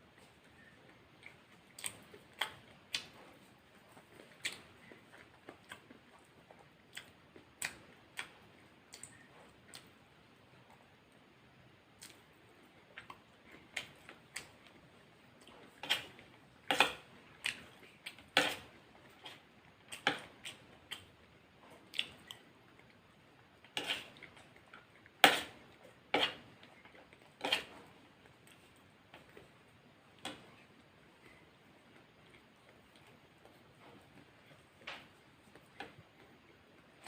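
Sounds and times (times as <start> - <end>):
wet chewing clicks: 0.6 - 10.0.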